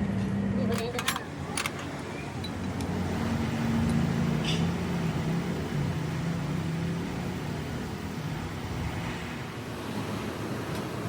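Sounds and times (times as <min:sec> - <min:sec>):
machine motor humming: 0:01.2 - 0:09.6.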